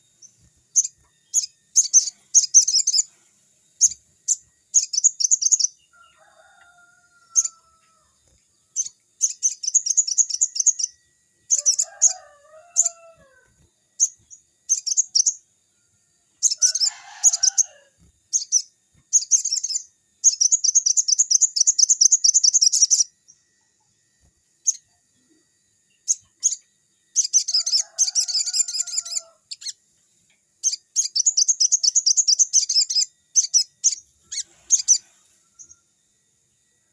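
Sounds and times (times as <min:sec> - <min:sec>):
high-pitched bird trills: 0:00.7 - 0:03.1, 0:07.3 - 0:07.6, 0:08.8 - 0:13.2, 0:16.4 - 0:23.1, 0:26.1 - 0:29.8, 0:30.6 - 0:35.0.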